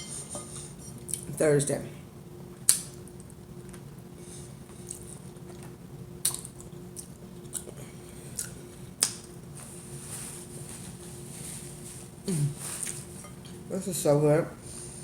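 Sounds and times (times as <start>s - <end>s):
close-miked chewing: 4.8s - 9.2s.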